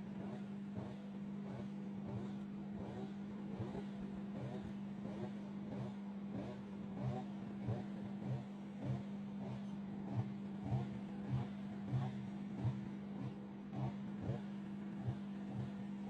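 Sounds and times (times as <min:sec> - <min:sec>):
microwave oven humming and pulsing: 0:00.0 - 0:16.0.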